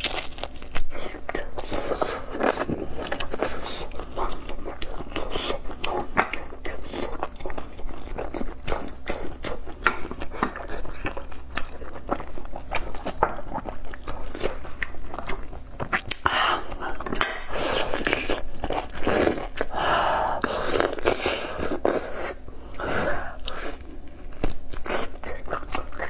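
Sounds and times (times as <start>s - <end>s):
close chewing with wet smacks: 0.0s - 19.8s.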